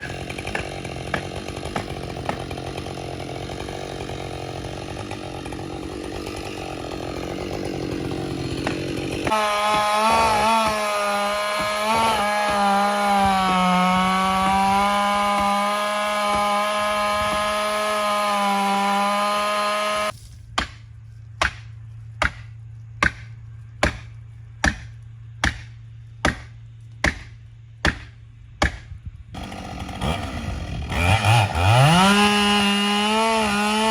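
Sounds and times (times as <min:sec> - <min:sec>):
chainsaw cutting log: 0:00.0 - 0:20.8, 0:21.4 - 0:33.9
low steady hum: 0:20.1 - 0:29.4.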